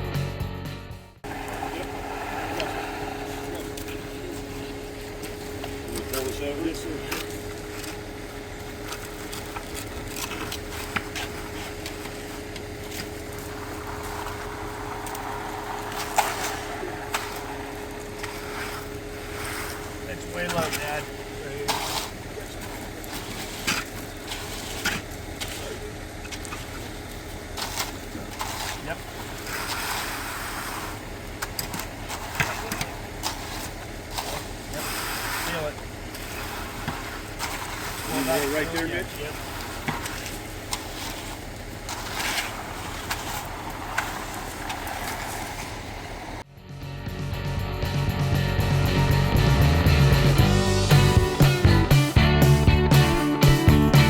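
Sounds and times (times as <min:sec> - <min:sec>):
low engine hum: 0:01.2 - 0:54.0
short knocks and scrapes: 0:08.8 - 0:26.8, 0:27.5 - 0:45.8.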